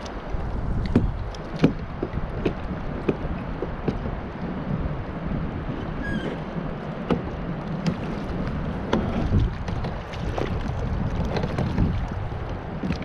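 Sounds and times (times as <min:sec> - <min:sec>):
wind noise: 0:00.0 - 0:13.0
knocks against kayak hull: 0:00.8 - 0:04.2, 0:07.0 - 0:12.0
water washing: 0:05.8 - 0:13.0.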